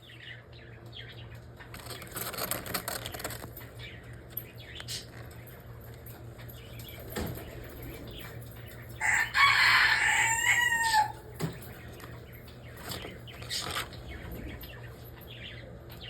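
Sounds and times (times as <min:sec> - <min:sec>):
rooster crowing: 0:09.0 - 0:11.3.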